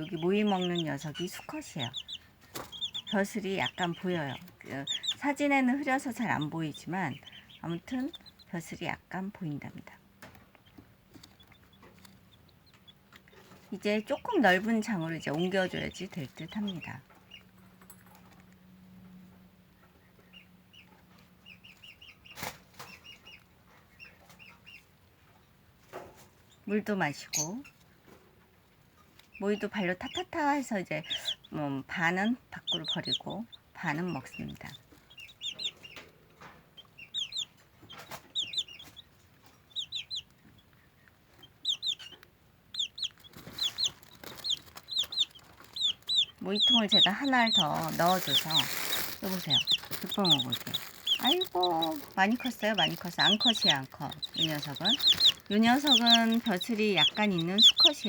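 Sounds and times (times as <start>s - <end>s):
chicks peeping: 0.0s - 58.0s.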